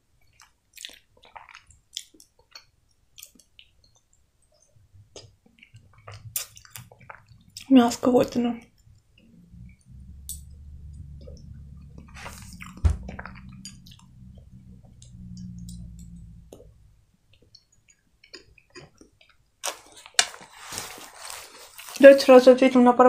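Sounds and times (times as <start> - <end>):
wet chewing mouth sounds: 0.2 - 4.1, 5.1 - 7.7, 11.2 - 20.2
low steady hum: 4.8 - 21.1
noisy burst: 9.3 - 17.0.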